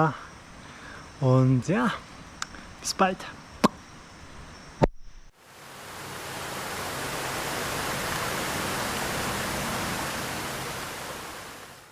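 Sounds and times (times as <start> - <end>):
steady rushing noise: 5.4 - 11.9.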